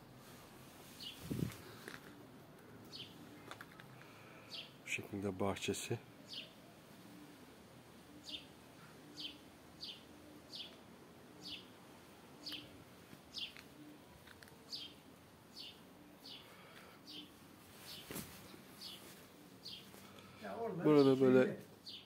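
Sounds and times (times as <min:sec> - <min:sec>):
bird chirping: 0:02.9 - 0:03.5, 0:06.2 - 0:07.4, 0:08.0 - 0:11.8, 0:12.4 - 0:21.2, 0:21.8 - 0:22.0.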